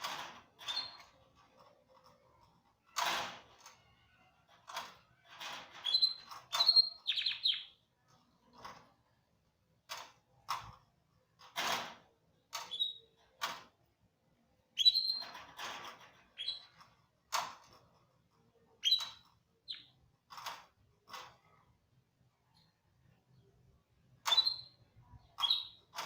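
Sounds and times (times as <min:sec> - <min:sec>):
canary chirping: 0:00.6 - 0:01.1, 0:05.7 - 0:07.9, 0:12.6 - 0:13.2, 0:14.7 - 0:15.4, 0:16.2 - 0:16.8, 0:18.7 - 0:20.0, 0:24.2 - 0:26.0.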